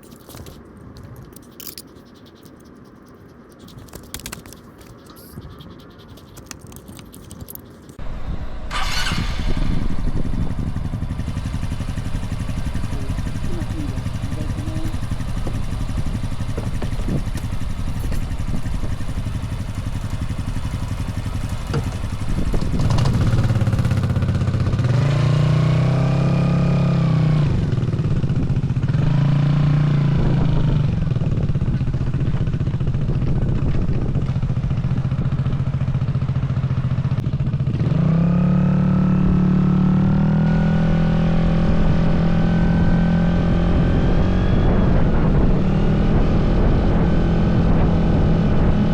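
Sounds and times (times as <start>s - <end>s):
scooter engine accelerating: 8.0s - 48.9s.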